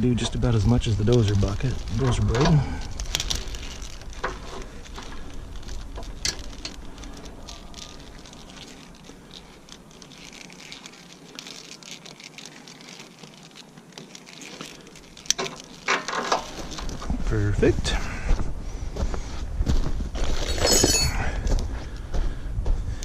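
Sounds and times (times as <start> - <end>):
low rumble: 0.0 - 11.7, 16.4 - 23.0
plastic wrap crinkling: 0.0 - 17.3.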